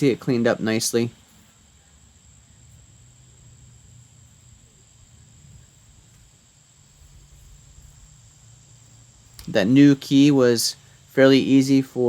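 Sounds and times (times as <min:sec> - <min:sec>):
high-pitched whine: 0:00.0 - 0:12.0.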